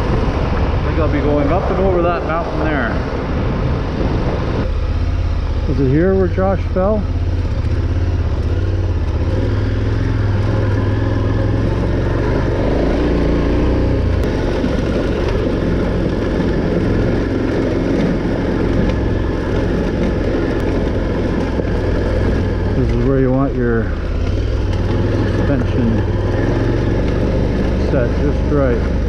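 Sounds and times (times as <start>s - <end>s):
wind noise: 0.0s - 7.1s
motorcycle engine running: 0.0s - 29.0s
road noise: 0.0s - 29.0s.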